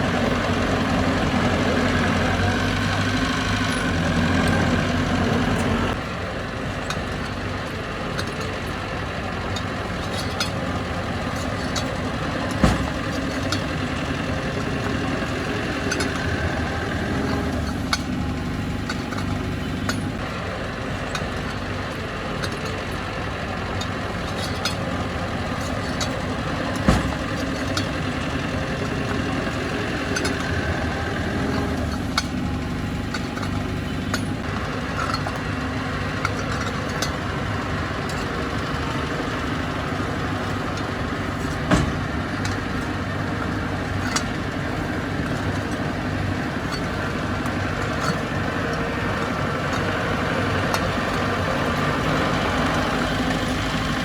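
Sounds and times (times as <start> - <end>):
diesel earthmoving machinery running: 0.0 - 54.0
sharp metal clanks and knocks: 9.5 - 20.3, 23.8 - 53.8.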